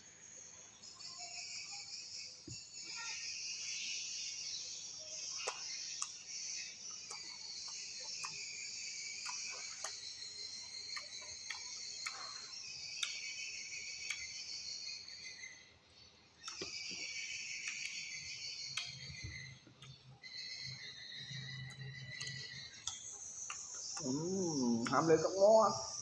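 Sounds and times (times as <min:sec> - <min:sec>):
crunchy fruit chewing: 0:05.2 - 0:14.5, 0:16.3 - 0:25.4.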